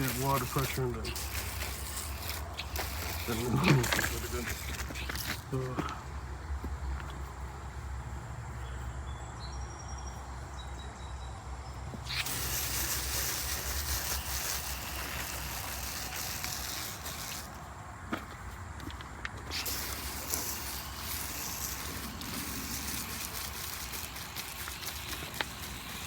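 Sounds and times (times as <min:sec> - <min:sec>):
garden hose spraying water: 0:00.0 - 0:06.2, 0:12.0 - 0:17.8, 0:19.4 - 0:26.0.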